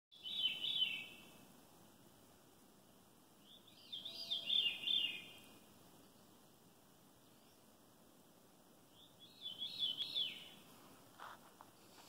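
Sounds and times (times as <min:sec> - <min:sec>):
songbird singing whistled notes: 0:00.1 - 0:01.4, 0:03.4 - 0:06.4, 0:08.9 - 0:10.6.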